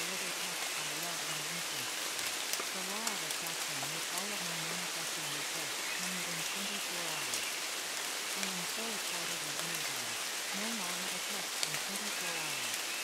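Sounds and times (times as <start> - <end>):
rain drops ticking: 0.0 - 13.0
steady rain falling: 0.0 - 13.0
faint low voice speaking: 2.7 - 7.5, 8.4 - 12.7.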